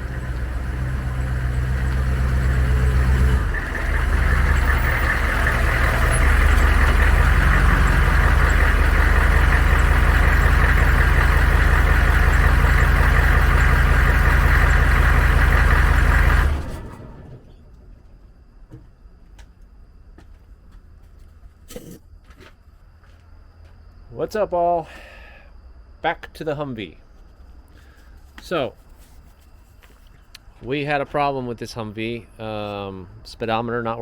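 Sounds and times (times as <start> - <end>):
diesel engine running: 0.0 - 18.3.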